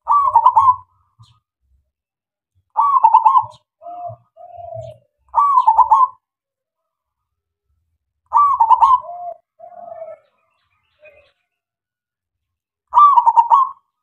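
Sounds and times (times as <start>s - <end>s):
dove cooing: 0.0s - 1.4s, 2.7s - 6.2s, 8.3s - 11.4s, 12.9s - 13.9s.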